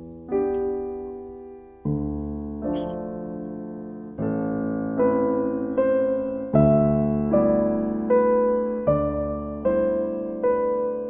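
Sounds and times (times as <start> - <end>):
soft piano chords: 0.0 - 11.0.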